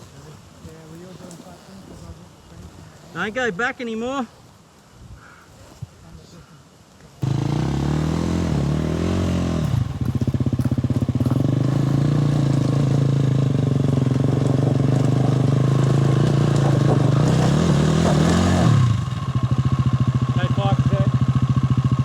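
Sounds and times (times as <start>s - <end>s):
dirt bike engine revving: 7.2s - 22.0s.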